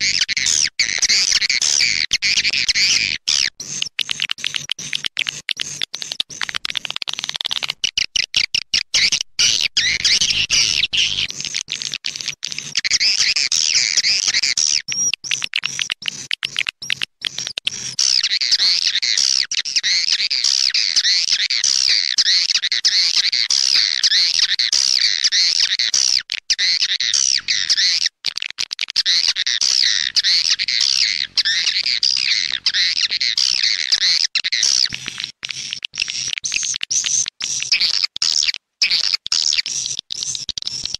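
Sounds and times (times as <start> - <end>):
high twittering bird chirps: 0.0 - 15.4, 29.2 - 35.0.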